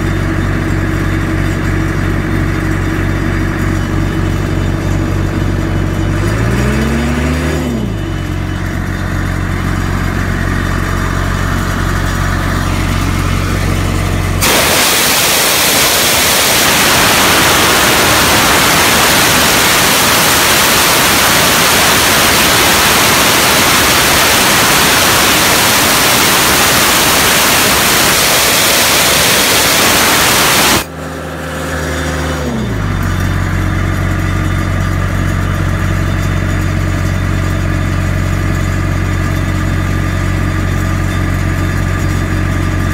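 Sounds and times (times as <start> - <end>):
air compressor diesel engine: 0.0 - 42.9
compressed air blowing off: 14.4 - 30.9.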